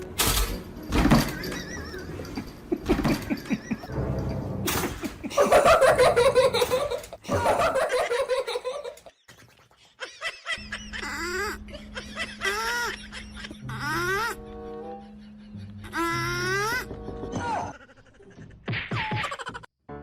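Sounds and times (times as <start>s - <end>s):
person laughing: 1.4s - 4.0s, 4.8s - 19.7s.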